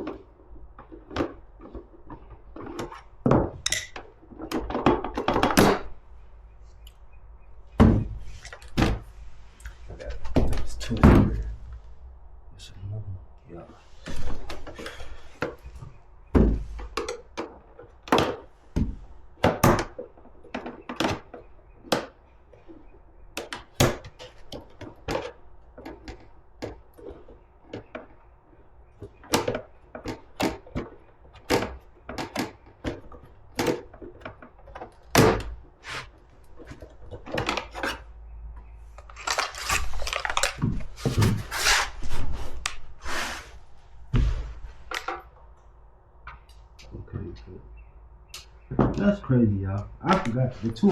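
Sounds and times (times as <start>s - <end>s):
tools clicking and knocking on plastic: 0.0s - 6.0s, 14.5s - 35.8s, 36.4s - 41.4s.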